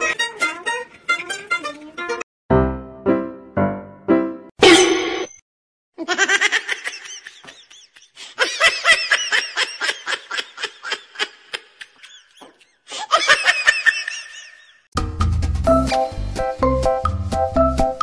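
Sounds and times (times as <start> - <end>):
high-pitched laughter: 6.0 - 14.8.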